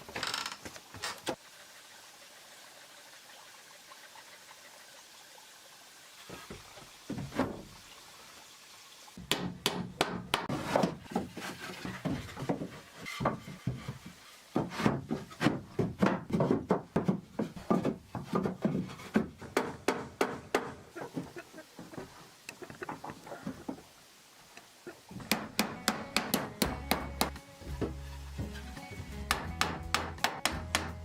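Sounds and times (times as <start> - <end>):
wooden knocks and clatter: 9.3 - 23.8.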